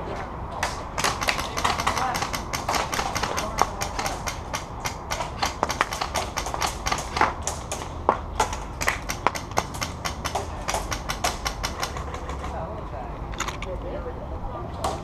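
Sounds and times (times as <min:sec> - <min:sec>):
airsoft guns firing: 0:00.6 - 0:12.6.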